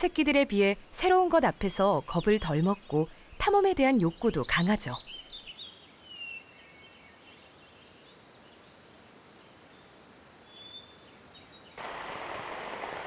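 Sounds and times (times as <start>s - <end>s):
rain falling on leaves: 11.8s - 13.0s.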